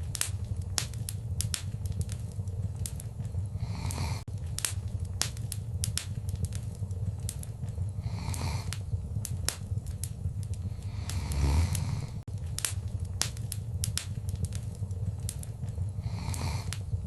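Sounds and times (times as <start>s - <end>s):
low rumble of flames: 0.0s - 17.0s
soft hissing of fire: 0.0s - 17.0s
wood fire crackling: 0.0s - 17.0s.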